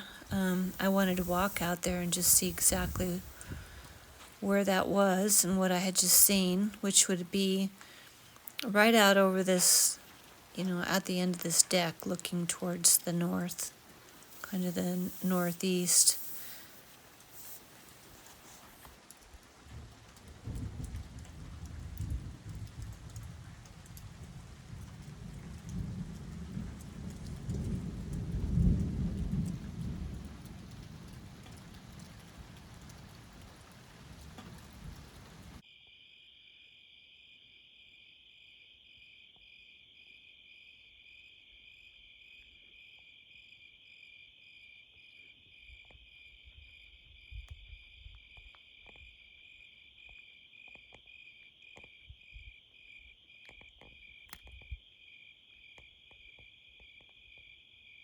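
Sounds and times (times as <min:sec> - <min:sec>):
rain-like hiss: 0:00.0 - 0:35.6
faint clicks: 0:16.0 - 0:35.6
crickets chirping: 0:33.0 - 0:58.0.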